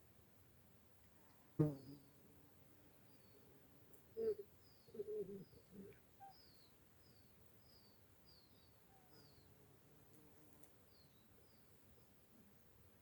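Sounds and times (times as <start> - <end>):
small bird chirping: 4.2 - 9.5.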